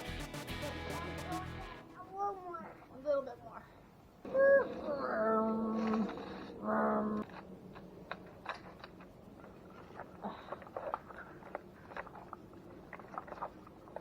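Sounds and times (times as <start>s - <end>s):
toy blade crunching dry dirt: 4.6s - 14.0s.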